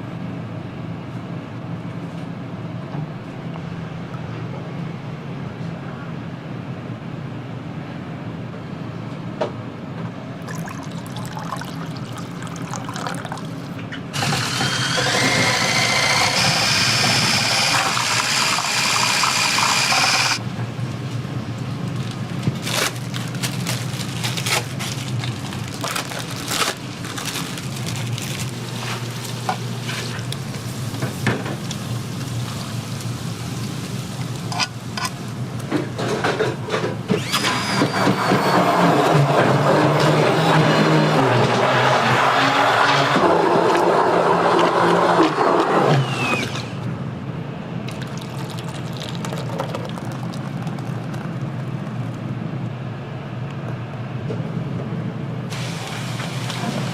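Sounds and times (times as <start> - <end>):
steady background noise: 0.0 - 37.4, 38.0 - 56.9
liquid rushing: 10.4 - 20.4, 41.8 - 46.8, 47.8 - 52.4
kitchen clatter and knocks: 35.7 - 37.0.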